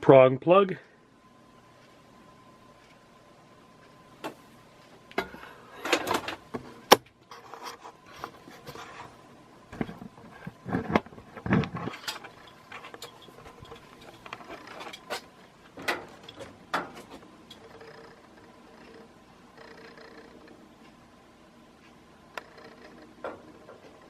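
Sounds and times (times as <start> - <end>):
handling clicks knocks and rubbing: 9.8 - 17.6.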